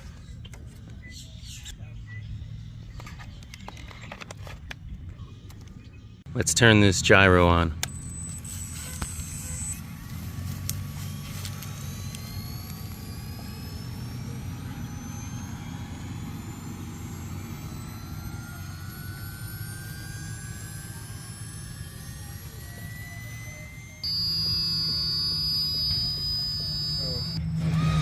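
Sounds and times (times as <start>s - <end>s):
thin rising whines: 5.2s - 28.0s
motor humming: 7.7s - 28.0s.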